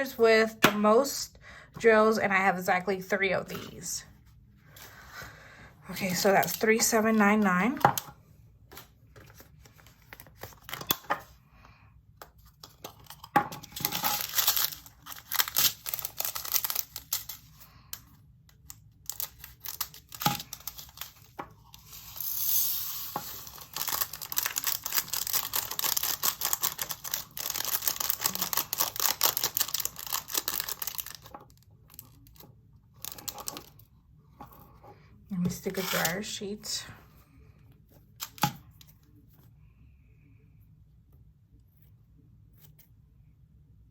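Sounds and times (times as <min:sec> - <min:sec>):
plastic bag crinkling: 0:13.6 - 0:17.8, 0:18.8 - 0:22.3, 0:23.1 - 0:32.4
tiny beads pouring into container: 0:21.9 - 0:30.0.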